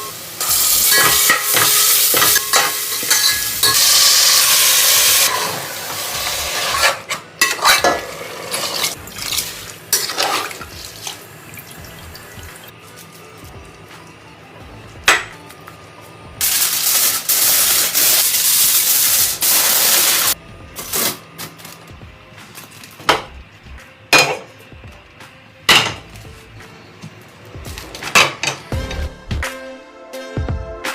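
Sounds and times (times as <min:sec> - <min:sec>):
pots and utensils clinking: 0:00.0 - 0:11.9, 0:24.1 - 0:24.6, 0:25.7 - 0:26.1, 0:27.8 - 0:28.7.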